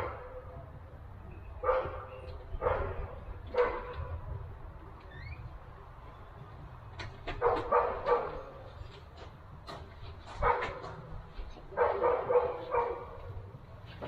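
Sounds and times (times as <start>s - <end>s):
dog barking: 1.6s - 4.1s, 7.4s - 8.6s, 10.4s - 11.0s, 11.7s - 13.4s.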